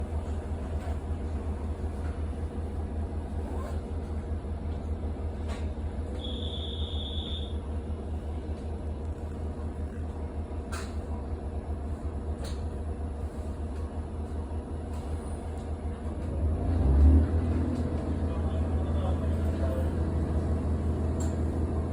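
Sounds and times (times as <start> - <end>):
diesel engine idling: 0.0 - 21.9
short high beep: 6.2 - 7.6.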